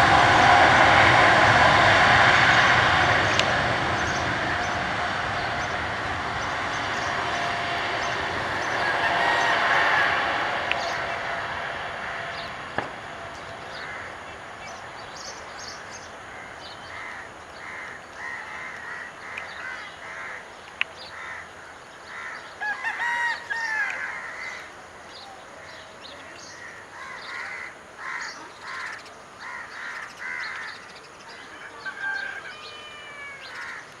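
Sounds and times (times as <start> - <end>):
crows cawing: 8.0 - 12.5, 13.5 - 14.4, 16.2 - 24.8, 26.5 - 34.0.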